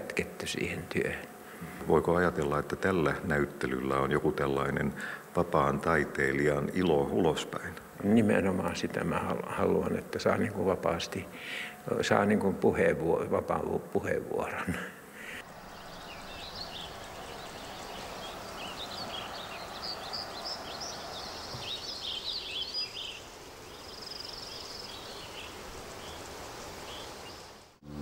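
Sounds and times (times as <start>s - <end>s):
steady outdoor hush: 0.0s - 28.0s
high bird trill: 15.4s - 27.4s
high bird chirps: 15.5s - 27.4s.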